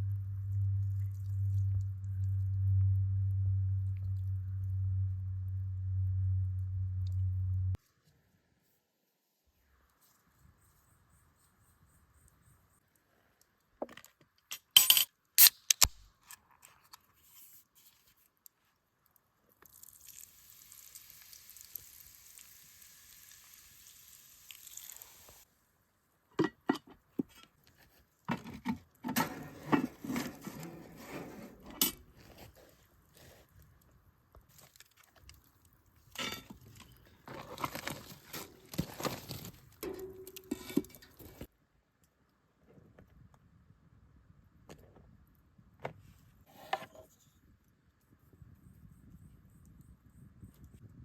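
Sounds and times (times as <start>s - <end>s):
steady hiss: 20.0s - 25.5s.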